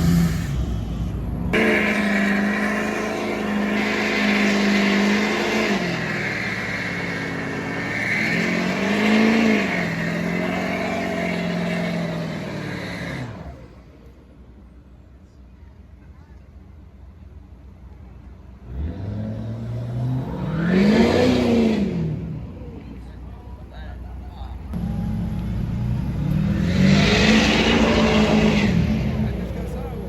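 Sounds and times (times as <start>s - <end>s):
car engine revving: 0.0s - 13.7s, 18.6s - 23.2s, 24.5s - 30.0s.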